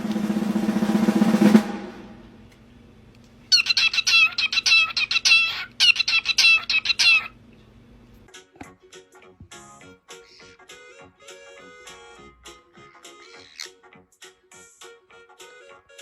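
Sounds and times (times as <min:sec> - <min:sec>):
music: 0:00.0 - 0:02.2, 0:08.3 - 0:16.0.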